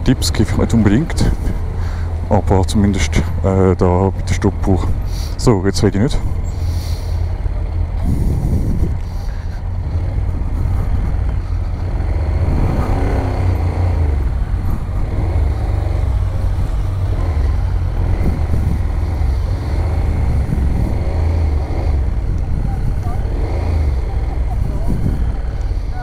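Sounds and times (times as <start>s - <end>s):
motorcycle engine idling: 0.0s - 26.0s
second engine revving: 0.0s - 26.0s.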